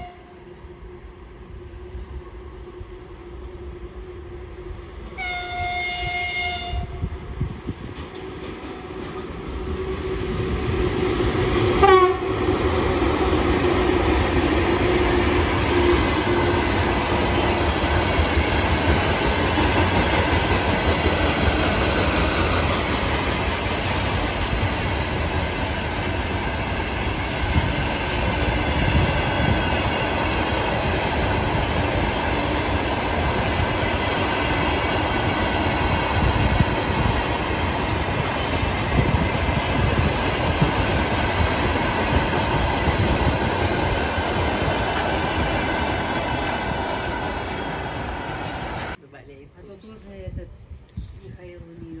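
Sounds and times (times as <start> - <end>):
locomotive horn blast: 0.0 - 0.3, 5.2 - 7.0, 11.8 - 12.3
train wheels rumbling on rails: 0.0 - 49.0.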